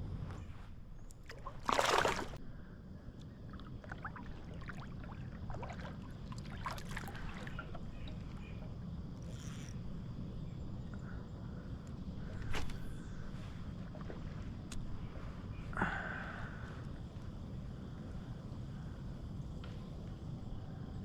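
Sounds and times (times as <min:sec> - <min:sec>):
water splashing: 0:01.2 - 0:02.4, 0:03.5 - 0:08.3
steady low rumble: 0:02.3 - 0:21.0.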